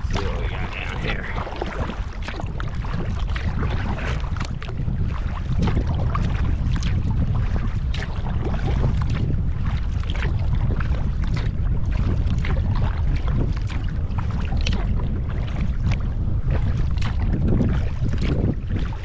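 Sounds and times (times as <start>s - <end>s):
water splashing against kayak: 0.0s - 19.0s
wind buffeting microphone: 0.0s - 19.0s.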